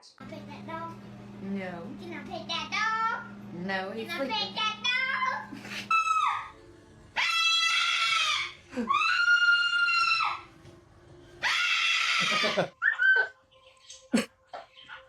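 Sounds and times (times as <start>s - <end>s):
parrot screeching: 5.9s - 6.6s, 7.2s - 10.5s, 11.4s - 13.4s.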